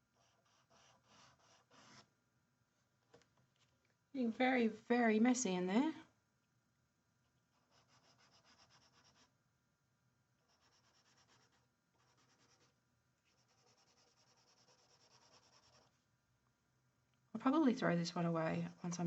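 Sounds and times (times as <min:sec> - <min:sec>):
pencil scratching on paper: 0:00.1 - 0:02.1, 0:07.5 - 0:09.3, 0:10.4 - 0:12.7, 0:13.3 - 0:16.0, 0:18.5 - 0:19.0.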